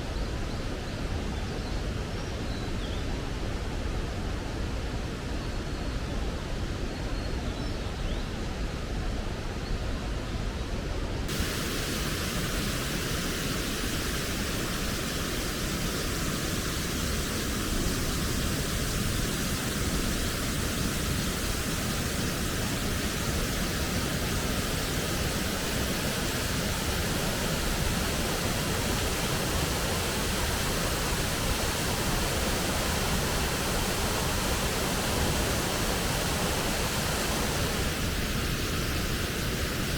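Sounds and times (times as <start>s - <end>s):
mountain stream rushing: 11.3s - 39.9s.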